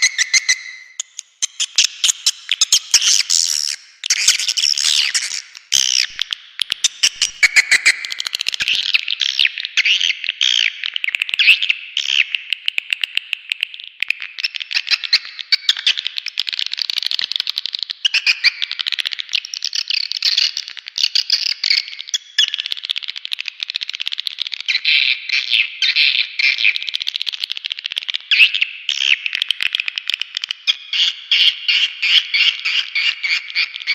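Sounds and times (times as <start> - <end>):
swiftlets twittering and chirping: 0.0 - 12.2, 28.3 - 33.9.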